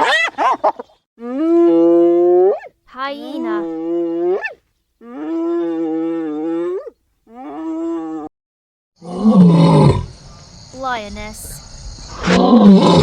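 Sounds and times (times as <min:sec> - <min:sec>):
hyena calling: 0:01.2 - 0:08.3.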